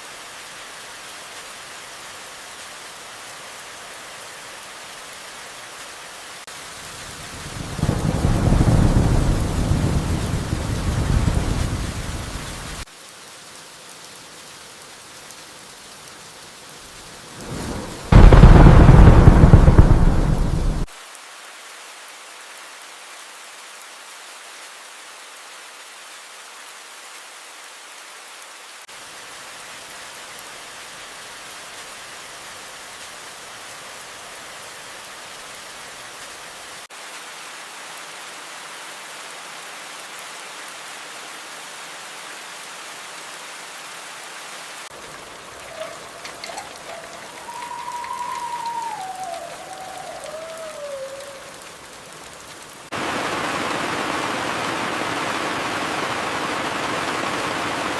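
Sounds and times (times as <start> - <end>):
steady rain falling: 0.0 - 57.9
thunder rumble: 7.4 - 12.8, 17.3 - 20.9, 45.2 - 52.1
loud thunder clap: 7.7 - 12.6, 17.4 - 20.9, 45.7 - 51.5.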